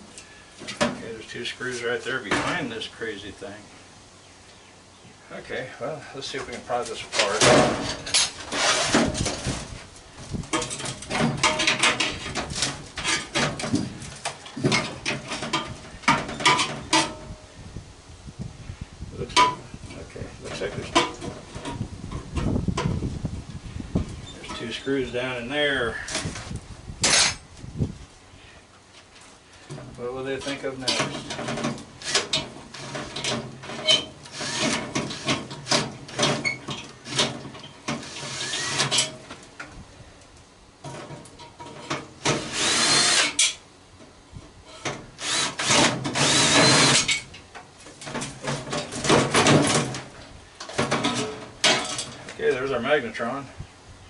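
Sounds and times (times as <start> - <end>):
tools scraping metal parts: 7.1 - 9.5, 10.5 - 13.9, 30.4 - 39.3, 40.8 - 43.6, 50.6 - 52.3.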